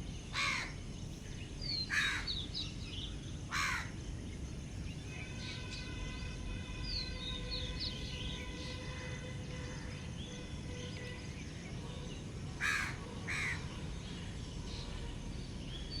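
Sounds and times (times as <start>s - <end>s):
outdoor background noise: 0.0s - 16.0s
small birds chirping: 0.0s - 16.0s
crow cawing: 0.4s - 0.8s, 1.9s - 2.4s, 3.5s - 3.9s, 12.6s - 13.6s.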